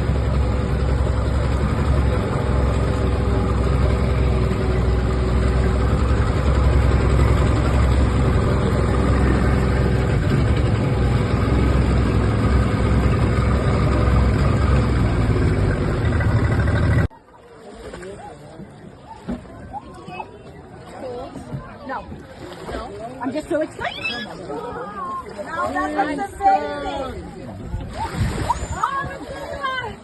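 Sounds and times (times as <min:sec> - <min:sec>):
engine droning: 0:00.0 - 0:17.1.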